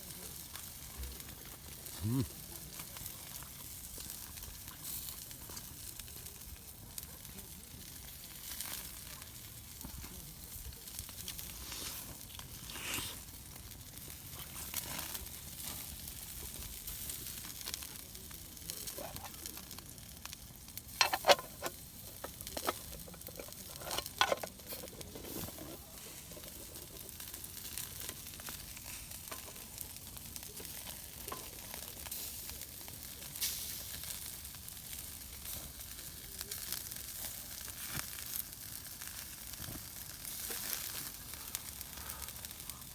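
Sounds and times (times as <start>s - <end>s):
food sizzling over campfire: 0.0s - 42.9s.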